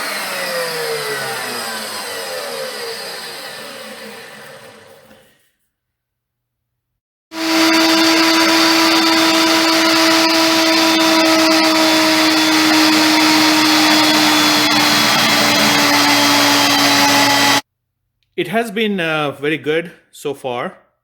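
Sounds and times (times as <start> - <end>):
table saw motor whine: 0.0 - 5.4, 7.3 - 17.6.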